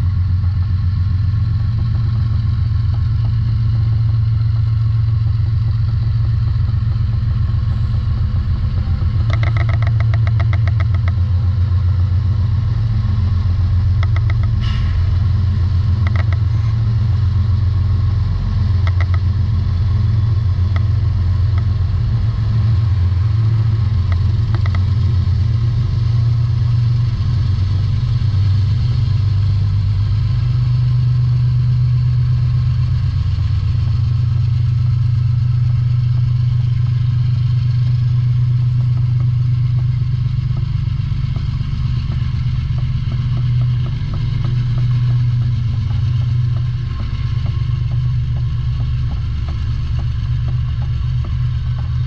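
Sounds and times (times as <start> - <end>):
fast clicks: 8.8 - 11.2, 14.0 - 14.6, 15.8 - 16.7, 18.6 - 22.2, 23.8 - 25.1.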